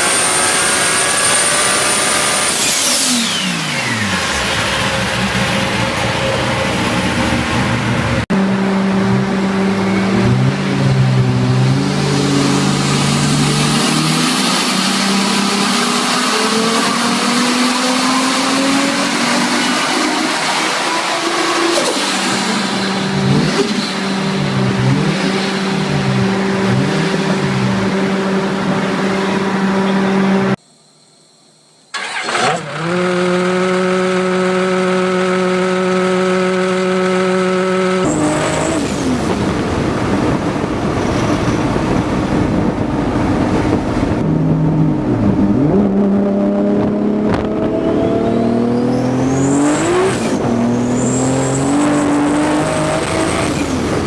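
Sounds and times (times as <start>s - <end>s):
turbocharged engine revving: 0.0s - 30.6s, 32.0s - 54.0s.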